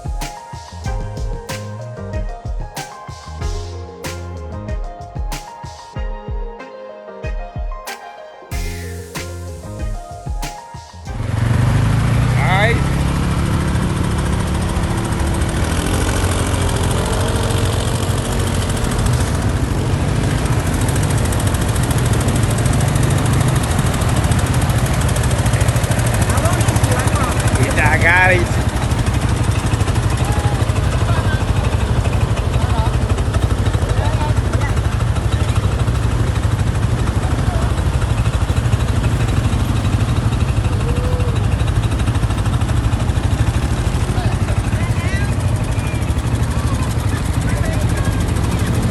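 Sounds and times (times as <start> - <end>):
vehicle engine running: 11.2 - 48.9.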